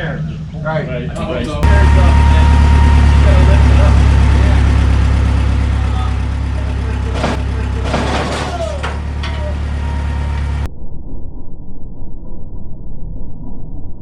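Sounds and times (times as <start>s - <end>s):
machine engine idling: 0.0s - 10.7s
knocks and clanks: 1.2s - 10.7s.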